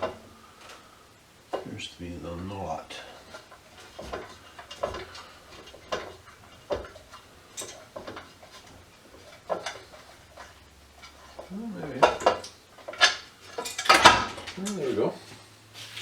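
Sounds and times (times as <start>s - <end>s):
small metal parts clicking: 3.0s - 14.9s.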